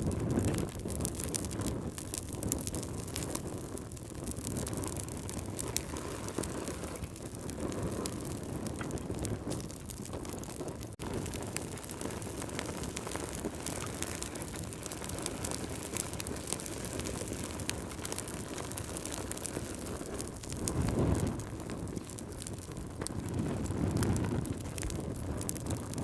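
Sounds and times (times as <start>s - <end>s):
fire crackling: 0.0s - 26.0s
low steady fire rumble: 0.0s - 26.0s.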